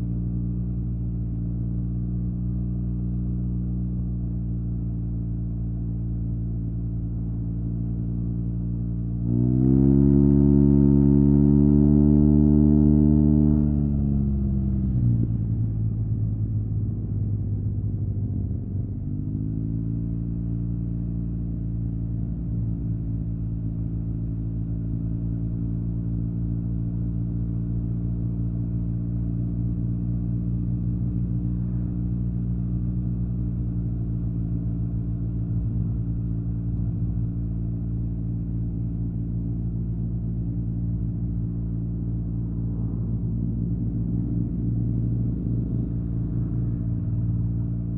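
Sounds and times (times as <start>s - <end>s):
motorcycle engine cruising: 9.3s - 20.5s, 25.1s - 47.9s.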